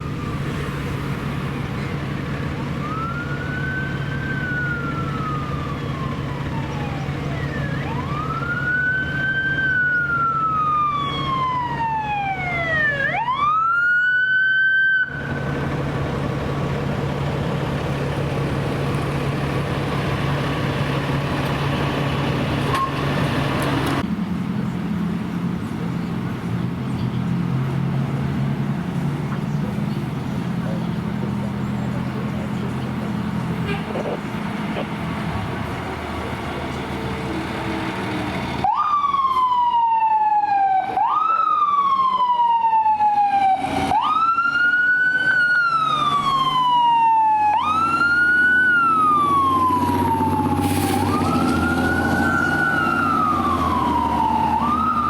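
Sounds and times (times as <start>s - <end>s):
ambulance siren wailing: 0.0s - 24.0s, 38.5s - 55.0s
low engine hum: 0.0s - 55.0s.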